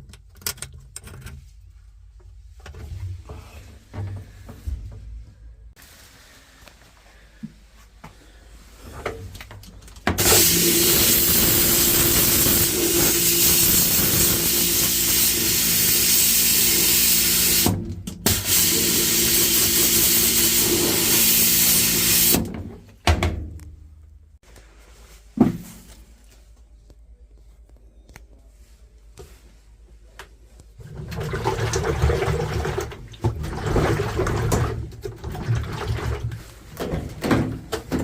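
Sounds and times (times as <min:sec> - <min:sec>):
pressure washer spraying: 0:10.2 - 0:22.5.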